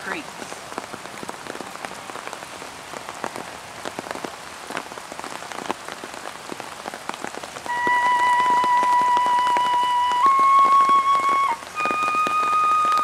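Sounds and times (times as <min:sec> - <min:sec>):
rain falling: 0:00.0 - 0:13.0
flute held note: 0:07.7 - 0:13.0.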